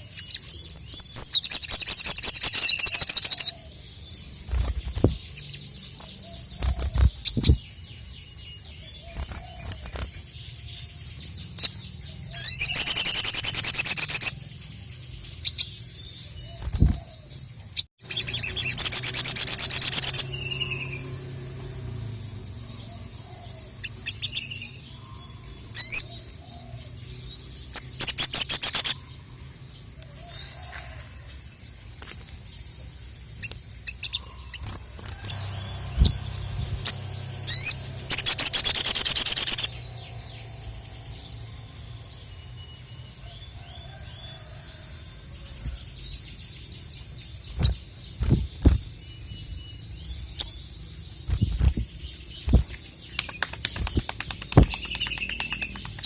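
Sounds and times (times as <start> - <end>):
songbird high-pitched trills: 0.0 - 17.0, 17.8 - 29.4, 32.6 - 44.5
bird chirps: 0.0 - 56.0.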